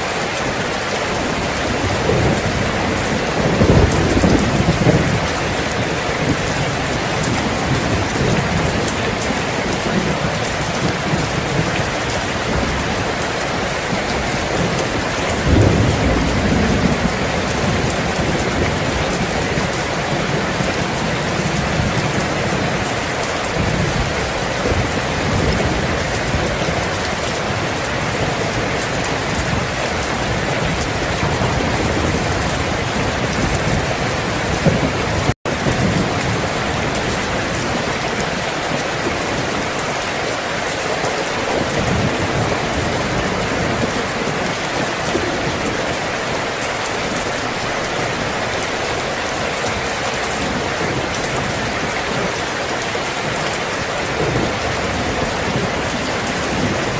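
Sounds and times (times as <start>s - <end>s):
steady rain: 0.0s - 56.9s
low thunder rolls: 1.2s - 39.8s.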